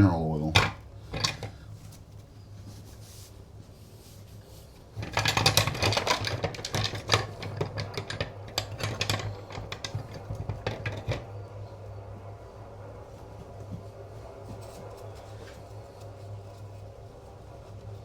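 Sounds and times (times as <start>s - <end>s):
small metal parts clattering: 0.5s - 1.6s, 5.0s - 11.3s
steady low hum: 6.8s - 18.0s.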